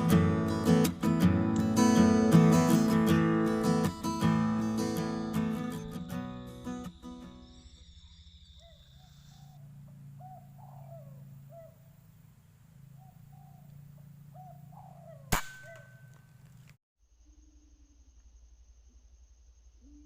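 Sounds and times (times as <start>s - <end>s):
dove cooing: 8.5s - 16.1s
air rifle shot: 15.3s - 16.1s.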